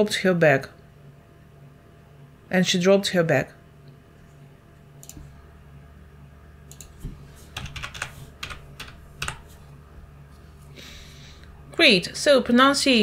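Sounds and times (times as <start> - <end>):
faint low hum: 0.0 - 13.0
keyboard keys tapping: 6.7 - 9.5.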